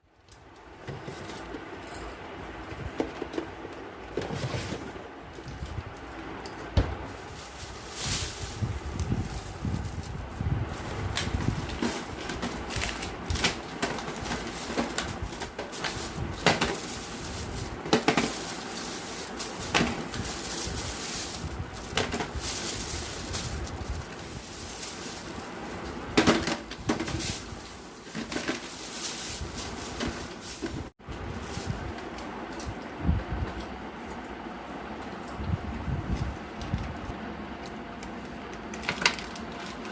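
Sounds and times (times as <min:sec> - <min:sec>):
steady hiss: 0:06.2 - 0:26.2, 0:26.9 - 0:32.1
kitchen items clicking and knocking: 0:11.1 - 0:25.3, 0:26.2 - 0:30.9.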